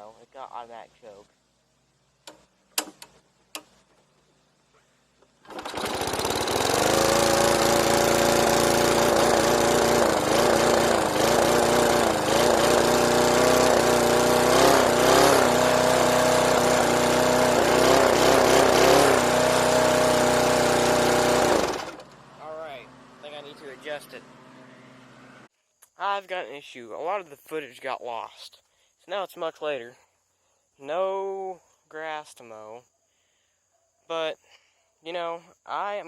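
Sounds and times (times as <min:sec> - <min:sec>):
lawn mower engine running: 0:05.2 - 0:25.5.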